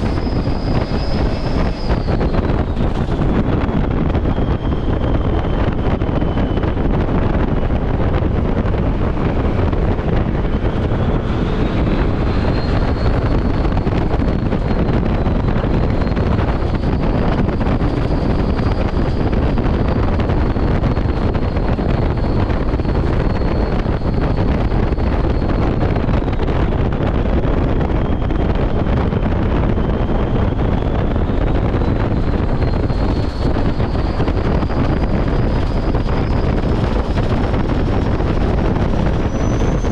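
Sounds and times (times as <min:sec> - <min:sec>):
faint high whine: 0:00.0 - 0:26.6, 0:27.9 - 0:39.9
truck road and wind noise: 0:00.0 - 0:39.9.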